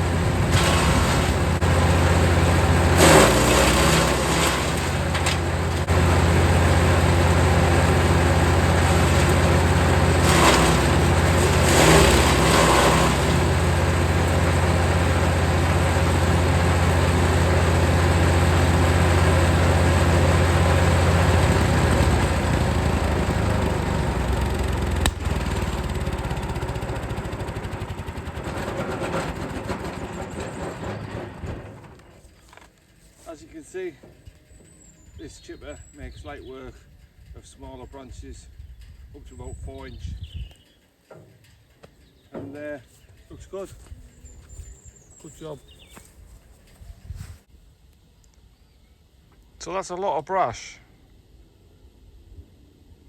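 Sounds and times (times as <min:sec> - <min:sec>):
branches crunching in chipper: 0:00.0 - 0:35.5, 0:41.9 - 0:47.5
wood chipper running: 0:00.0 - 0:36.5.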